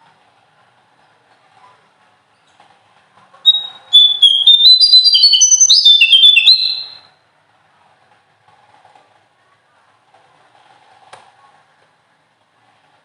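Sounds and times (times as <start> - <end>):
songbird singing trill: 3.5 - 7.0.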